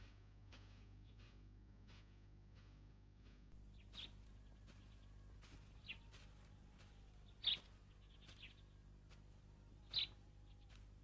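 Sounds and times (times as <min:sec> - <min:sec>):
low steady hum: 0:03.5 - 0:11.0
high bird chirps: 0:07.3 - 0:08.6, 0:09.8 - 0:10.2.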